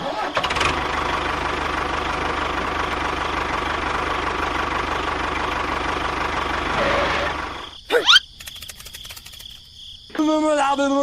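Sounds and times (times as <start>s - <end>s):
engine idling with chugging: 0.1s - 7.7s.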